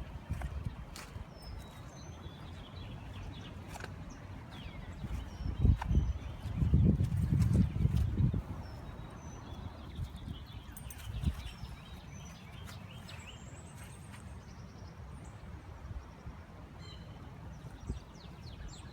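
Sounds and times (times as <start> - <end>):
birds chirping: 0.0 - 14.9.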